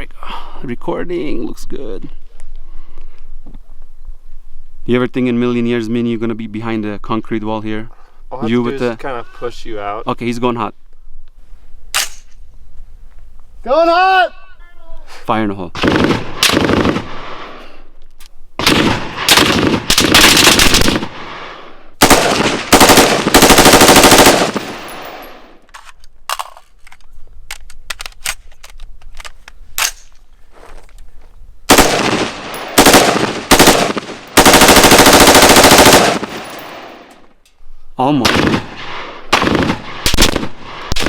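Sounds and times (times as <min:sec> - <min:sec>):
machine gun bursts: 0:18.7 - 0:21.0, 0:22.0 - 0:25.2, 0:31.7 - 0:36.9.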